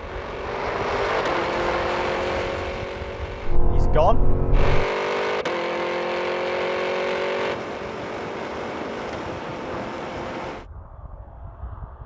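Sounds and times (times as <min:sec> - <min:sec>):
engine at full throttle: 0:00.0 - 0:10.7
wind rushing: 0:02.5 - 0:04.9
faint low rumble: 0:03.4 - 0:04.9.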